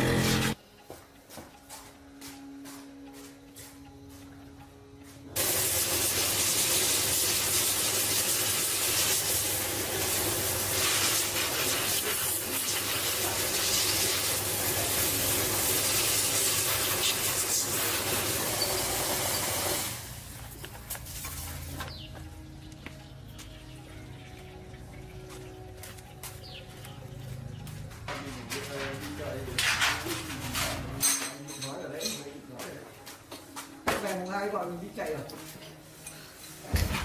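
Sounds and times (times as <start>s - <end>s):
pressurized air hiss: 5.4s - 20.3s.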